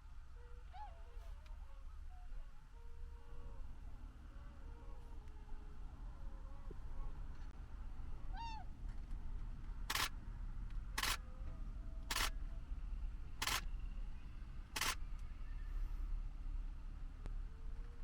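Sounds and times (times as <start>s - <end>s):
camera shutter clacks: 9.9s - 10.1s, 11.0s - 11.2s, 12.1s - 12.4s, 13.4s - 13.7s, 14.8s - 15.0s.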